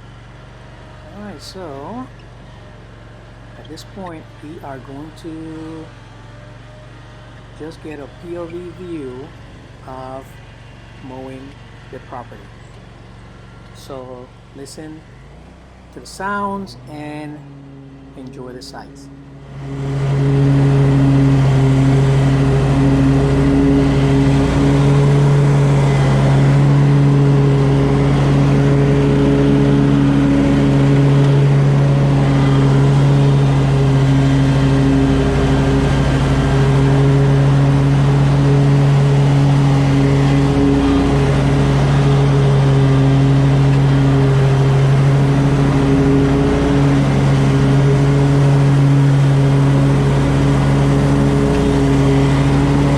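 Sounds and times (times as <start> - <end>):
lawn mower engine drone: 0.0 - 52.9.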